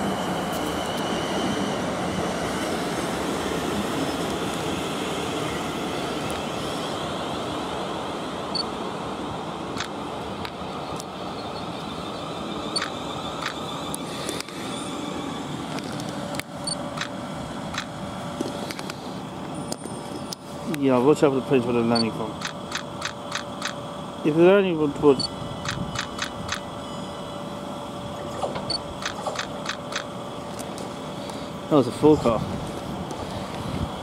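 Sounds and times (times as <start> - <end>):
train rumble: 0.0 - 34.0
sharp clicks: 12.8 - 13.6, 17.7 - 17.9, 22.4 - 23.8, 25.6 - 26.6, 28.4 - 30.1.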